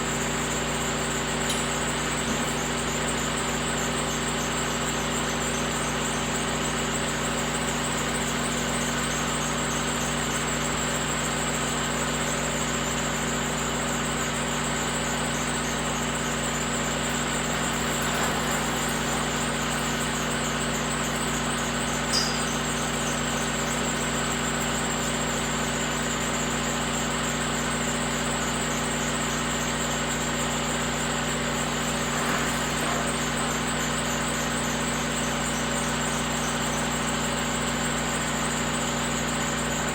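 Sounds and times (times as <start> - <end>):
diesel engine idling: 16.7 - 23.7.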